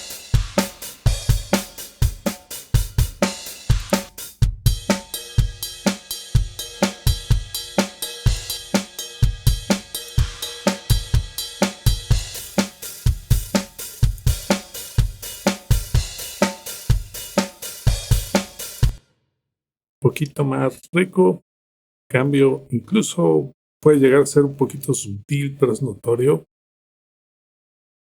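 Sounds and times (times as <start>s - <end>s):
hi-hat: 0.0s - 18.9s
cymbals: 0.0s - 19.0s
snare drum: 0.0s - 19.0s
kick drum: 3.0s - 5.6s, 13.1s - 16.2s.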